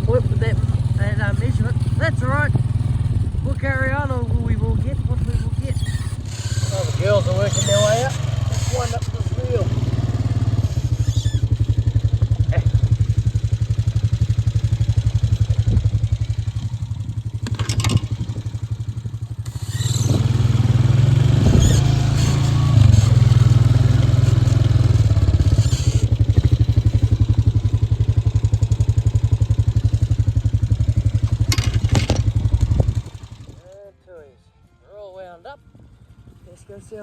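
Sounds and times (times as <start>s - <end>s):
small engine idling: 0.0s - 34.2s
reel clicking and rattling: 17.4s - 18.3s.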